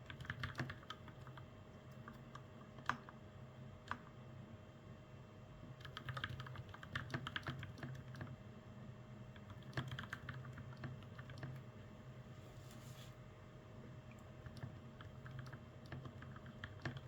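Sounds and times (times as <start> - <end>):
typing on mechanical keyboard: 0.0 - 1.4, 5.8 - 8.3, 9.4 - 11.6, 14.4 - 17.0.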